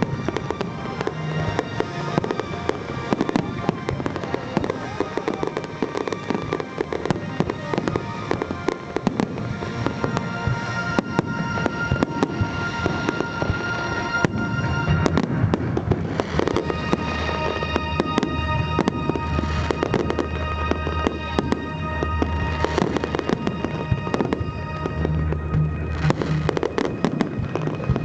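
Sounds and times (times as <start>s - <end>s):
fireworks bangs and crackling: 0.0s - 28.0s
music playing: 0.0s - 28.0s.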